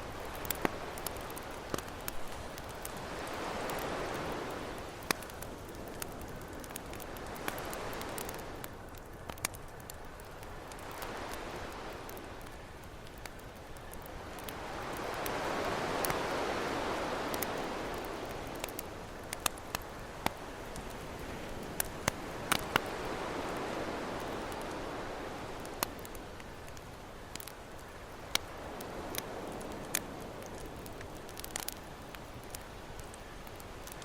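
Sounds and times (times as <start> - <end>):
ocean waves washing in: 0.0 - 8.7, 14.4 - 19.1
campfire popping and crackling: 0.0 - 34.0.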